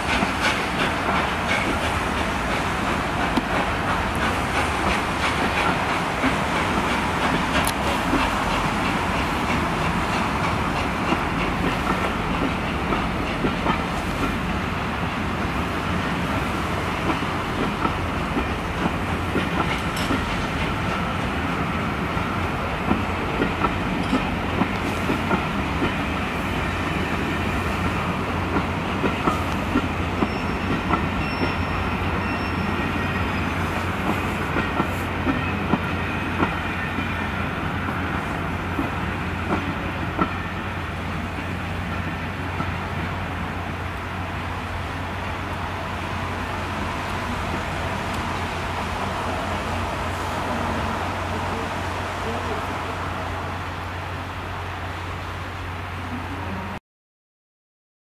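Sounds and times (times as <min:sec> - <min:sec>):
train wheels clicking over track: 0:00.0 - 0:44.2.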